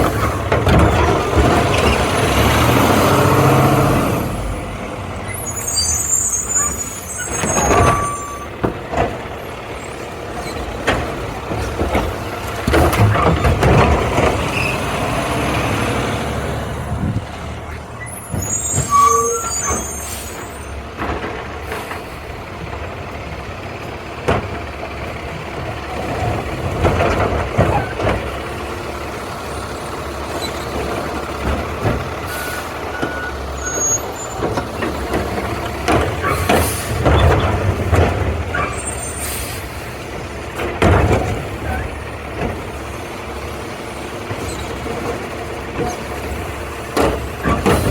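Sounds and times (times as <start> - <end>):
loud clanks and bangs: 0.0 - 4.1, 10.6 - 15.4, 34.3 - 42.8
garbage truck engine running: 0.0 - 47.9
air brakes hissing: 18.0 - 20.8, 36.2 - 37.0, 38.6 - 40.0.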